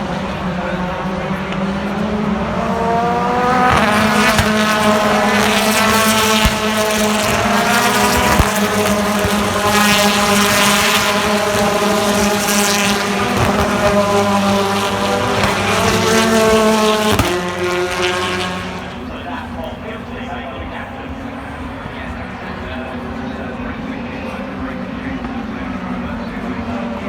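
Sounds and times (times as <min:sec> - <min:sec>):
gear change: 0:00.0 - 0:19.7
racing car engine revving: 0:00.0 - 0:27.0.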